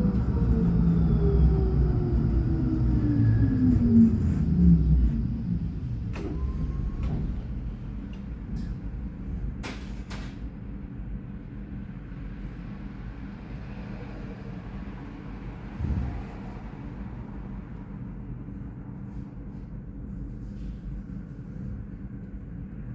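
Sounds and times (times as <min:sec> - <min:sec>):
tram drive whining down: 0:00.0 - 0:08.9, 0:15.3 - 0:18.4
brief low rumble: 0:15.6 - 0:20.8.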